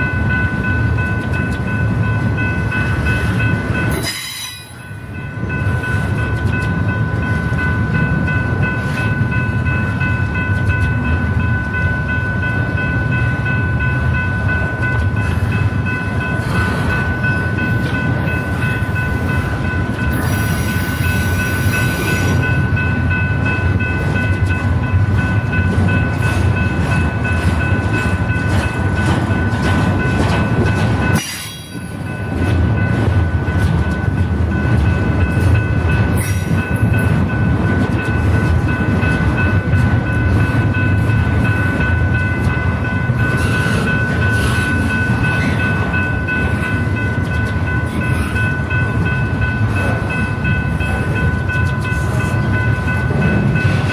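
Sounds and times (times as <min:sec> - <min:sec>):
freight train rumbling on rails: 0:00.0 - 0:53.9.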